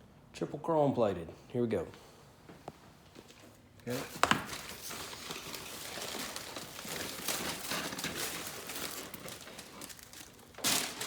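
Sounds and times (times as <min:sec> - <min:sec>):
wrapping crinkling and rustling: 0:03.2 - 0:11.0.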